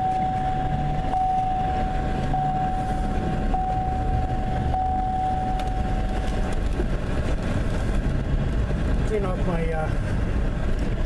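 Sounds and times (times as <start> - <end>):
truck warning chime: 0.0 - 6.2.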